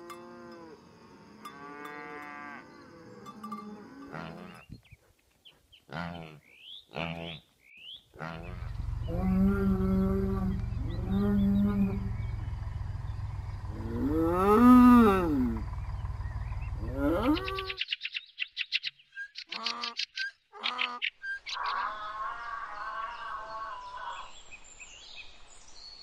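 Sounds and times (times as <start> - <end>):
cattle mooing: 1.4 - 4.6, 8.2 - 12.5, 13.7 - 15.6, 16.8 - 17.8
low rumble: 8.4 - 17.7
short calls: 16.8 - 17.8.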